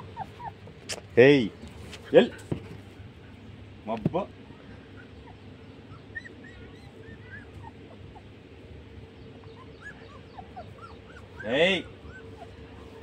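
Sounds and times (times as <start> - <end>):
puppies whimpering: 0.0 - 0.8, 4.3 - 13.0.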